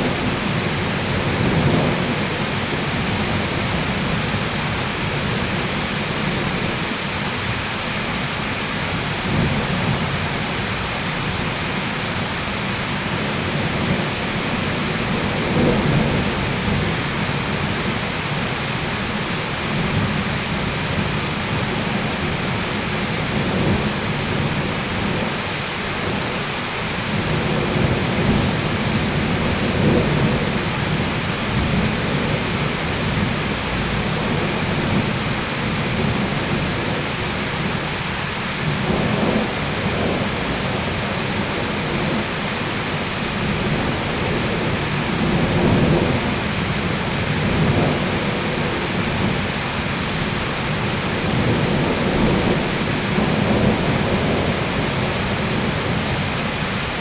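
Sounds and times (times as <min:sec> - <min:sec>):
low rolling thunder: 0:00.0 - 0:07.6, 0:08.2 - 0:57.0
heavy rain hissing: 0:00.0 - 0:57.0.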